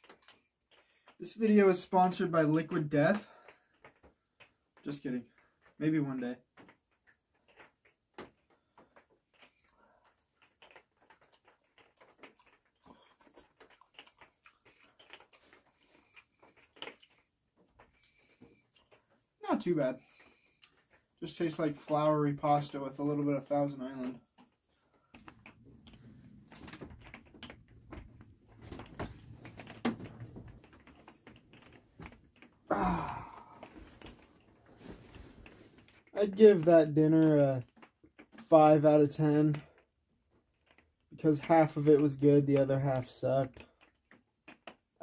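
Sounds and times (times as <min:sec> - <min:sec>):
person chewing food: 0:06.9 - 0:19.4, 0:20.0 - 0:21.2, 0:24.1 - 0:36.1.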